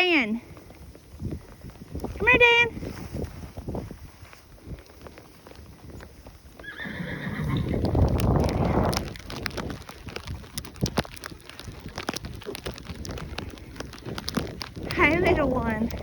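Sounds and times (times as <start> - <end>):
horse neighing: 6.6 - 8.7.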